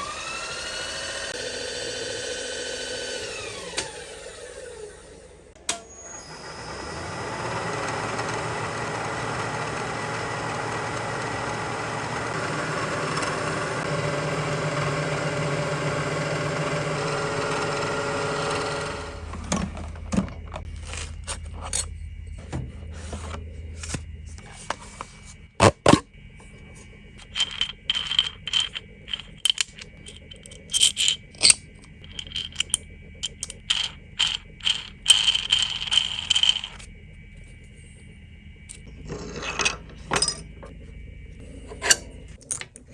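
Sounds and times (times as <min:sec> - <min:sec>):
machine tool running: 0:27.2 - 0:36.9
metal parts clinking and scraping: 0:27.2 - 0:36.9, 0:38.7 - 0:40.7.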